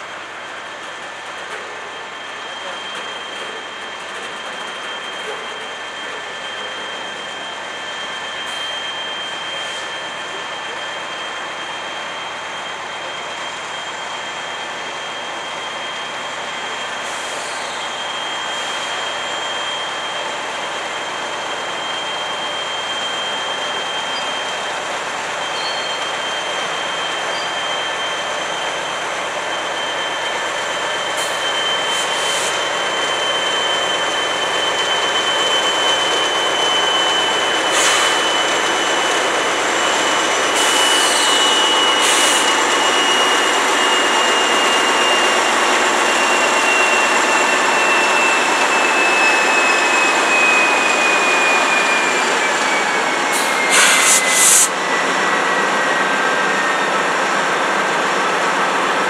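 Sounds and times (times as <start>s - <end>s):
rushing rail noise: 0.0s - 59.0s
train wheels squealing on rail: 0.0s - 59.0s
short hiss and clank bursts: 31.2s - 32.6s, 53.3s - 54.7s.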